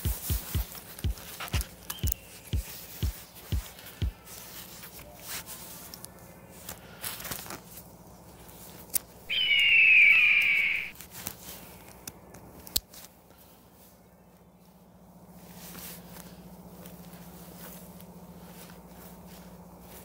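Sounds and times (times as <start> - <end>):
sharp clicks: 0.1 - 3.2
harsh bird call falling in pitch: 9.3 - 10.9.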